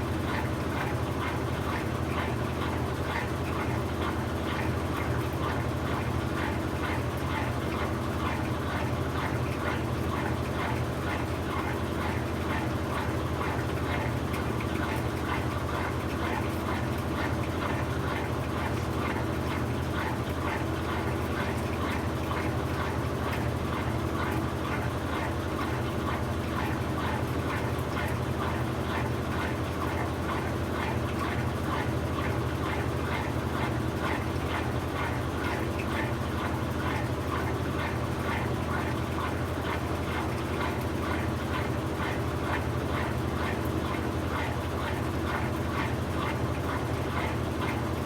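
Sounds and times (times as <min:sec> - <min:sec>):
washing machine running: 0:00.0 - 0:48.0.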